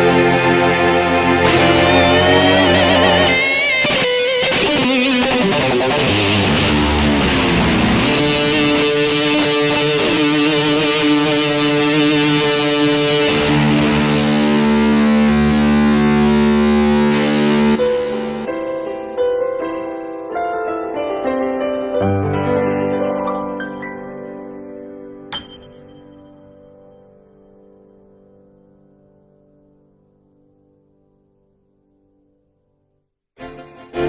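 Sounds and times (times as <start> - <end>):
keyboard distorted electric guitar: 0.0 - 18.7.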